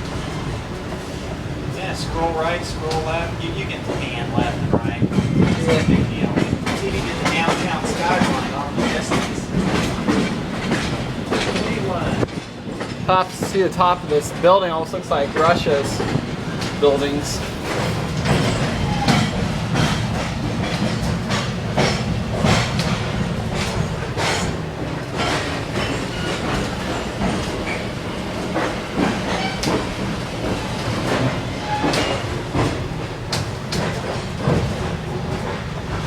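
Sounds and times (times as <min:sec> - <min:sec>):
train car rumbling on track: 0:00.0 - 0:36.0
wheels clicking and clanking: 0:05.0 - 0:36.0.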